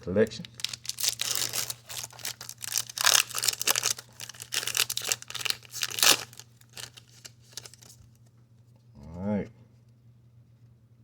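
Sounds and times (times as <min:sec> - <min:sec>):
plastic wrapper crinkling and tearing: 0:00.0 - 0:08.0.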